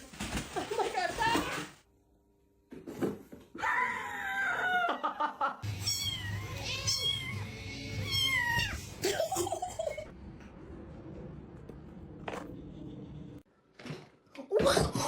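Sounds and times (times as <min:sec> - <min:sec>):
cat meowing: 0:05.7 - 0:08.9.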